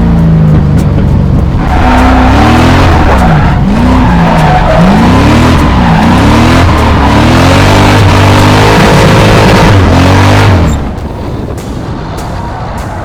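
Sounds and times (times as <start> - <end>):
car engine revving: 0.0 - 13.0
tyres squealing: 1.6 - 8.2.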